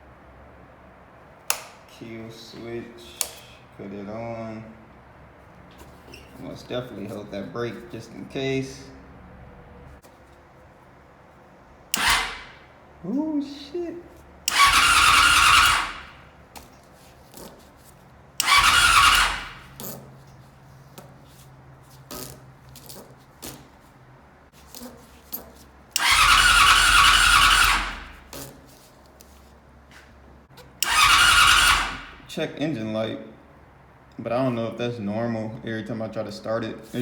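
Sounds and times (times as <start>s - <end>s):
motorcycle engine cranking: 11.9s - 12.7s, 14.4s - 20.5s, 24.6s - 28.7s, 30.6s - 32.3s.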